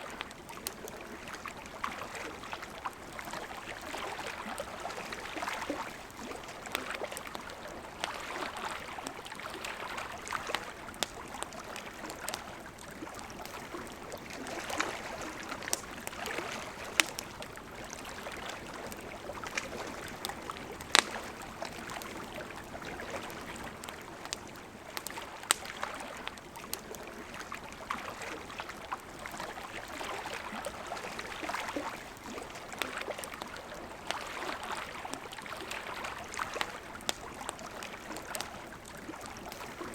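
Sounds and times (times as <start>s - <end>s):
river flowing: 0.0s - 39.9s
campfire popping and crackling: 0.1s - 39.9s.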